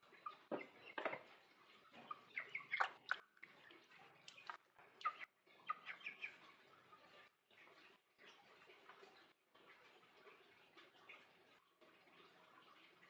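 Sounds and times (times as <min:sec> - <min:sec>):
bird chirping and clicking: 0:00.1 - 0:06.6.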